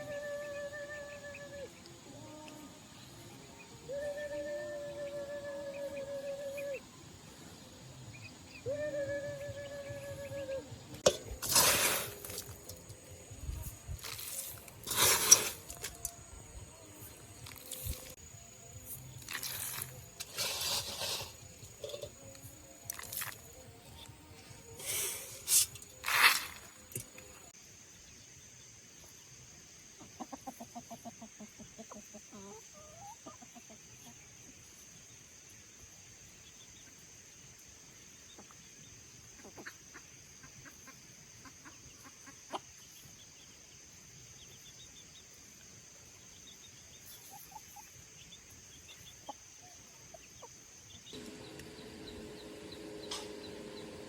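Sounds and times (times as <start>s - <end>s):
chickens clucking: 30.0s - 34.2s, 39.4s - 42.9s, 51.2s - 54.0s.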